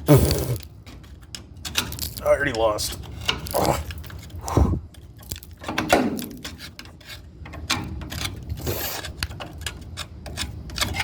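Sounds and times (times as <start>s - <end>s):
person grunting: 0.0s - 0.6s.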